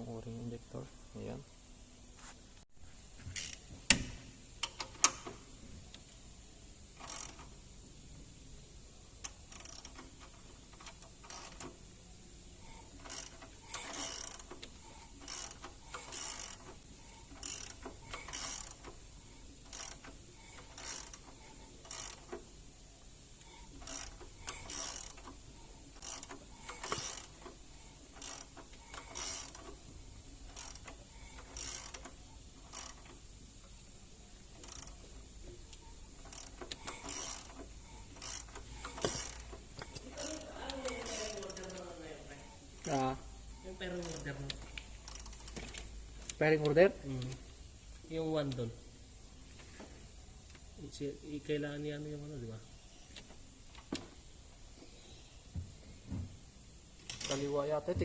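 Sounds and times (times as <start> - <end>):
ratchet wrench clicking: 3.4 - 5.4, 6.9 - 7.6, 9.2 - 11.8, 12.7 - 22.5, 23.4 - 33.7, 34.4 - 43.1, 43.7 - 47.4.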